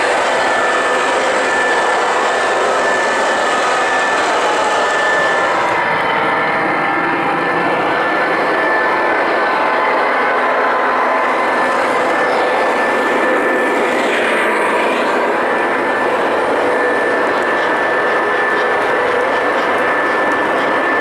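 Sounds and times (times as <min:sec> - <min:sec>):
model train wheels on rails: 0:00.0 - 0:21.0
motor whine: 0:00.0 - 0:21.0.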